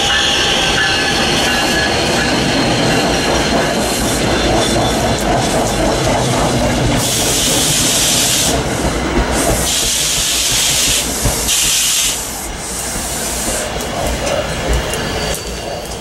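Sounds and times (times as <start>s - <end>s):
train rumbling: 0.0s - 16.0s
loud hiss: 7.0s - 13.9s.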